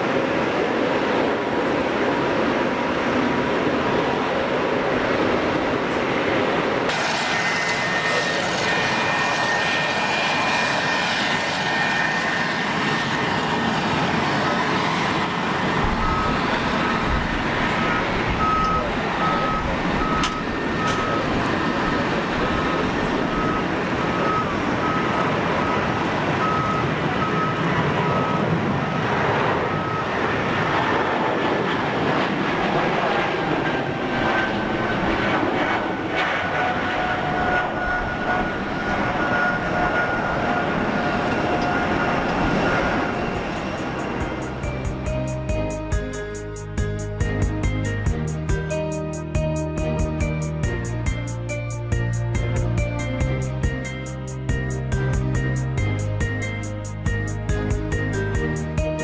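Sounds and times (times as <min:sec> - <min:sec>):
jet engines of passing airliner: 0:00.0 - 0:59.0
faint beeping: 0:15.8 - 0:28.6.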